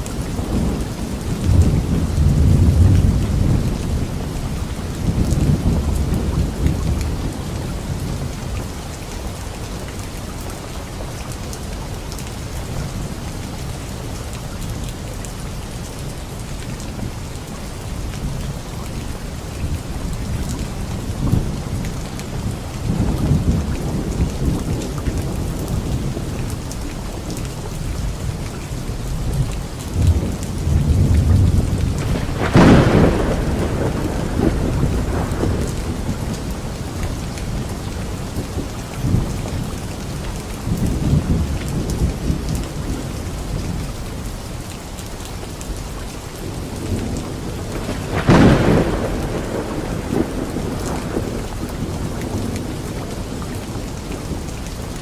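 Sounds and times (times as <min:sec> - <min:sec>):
steady rain: 0:00.0 - 0:55.0
loud thunderclaps: 0:00.1 - 0:07.4, 0:29.3 - 0:39.8, 0:46.4 - 0:54.5
rolling thunder rumbling: 0:00.1 - 0:08.5, 0:19.7 - 0:44.3, 0:46.4 - 0:55.0.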